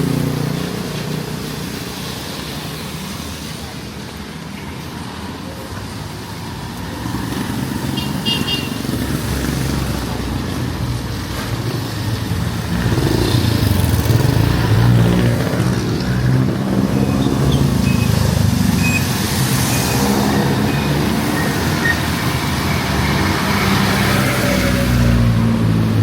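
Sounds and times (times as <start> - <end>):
vehicle engines droning: 5.2 - 26.0.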